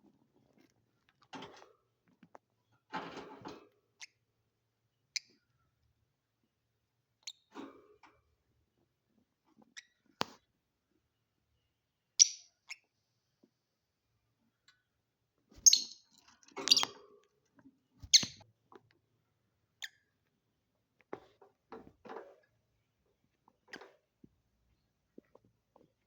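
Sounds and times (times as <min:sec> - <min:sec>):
faint knocks and rustles: 0:00.0 - 0:03.9, 0:20.8 - 0:26.0
lovebirds shrill chirps: 0:15.6 - 0:16.0.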